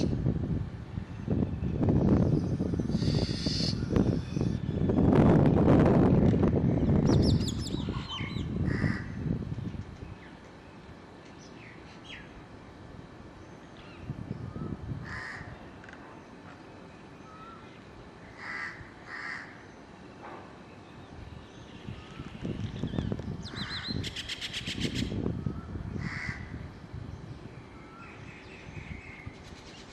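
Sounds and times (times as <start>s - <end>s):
harsh bird calls: 2.0s - 5.1s, 20.8s - 29.9s.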